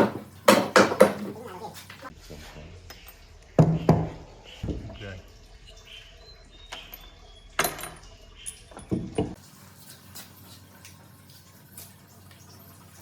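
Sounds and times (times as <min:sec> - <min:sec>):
objects knocking and clattering: 0:00.0 - 0:02.0, 0:07.6 - 0:09.4.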